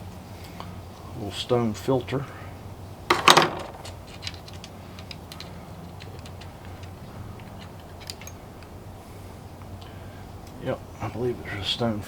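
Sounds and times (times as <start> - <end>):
clicks and taps of small tools: 3.1 - 8.7.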